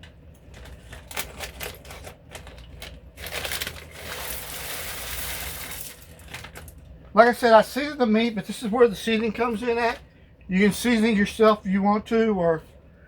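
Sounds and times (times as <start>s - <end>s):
frozen vegetables pouring into pot: 3.1s - 6.7s.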